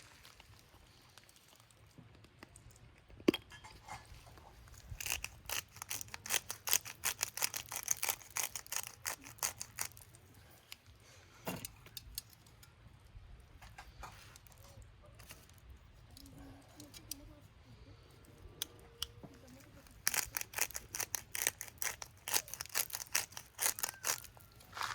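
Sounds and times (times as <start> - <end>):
steak crackling and popping: 4.8 - 10.2, 19.5 - 24.9.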